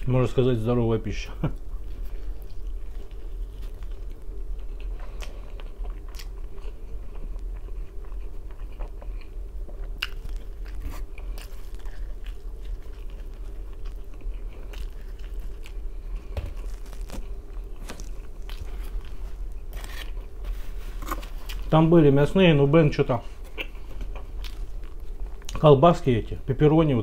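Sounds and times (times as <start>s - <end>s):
crunchy crust crackles: 0.0s - 27.0s
steady low hum: 0.0s - 27.0s
chewing pizza: 1.4s - 22.0s, 23.1s - 25.9s.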